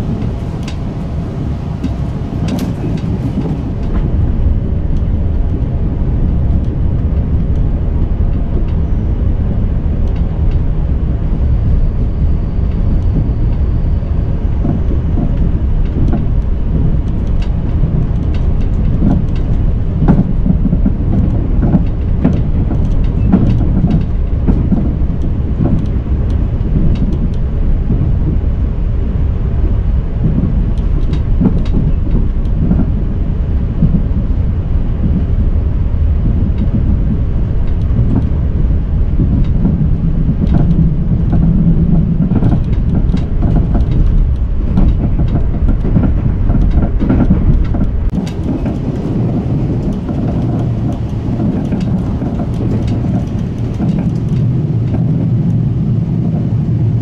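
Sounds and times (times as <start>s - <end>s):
train low rumble: 0.0s - 57.0s
clicks and rattles: 14.6s - 28.0s, 39.2s - 55.6s.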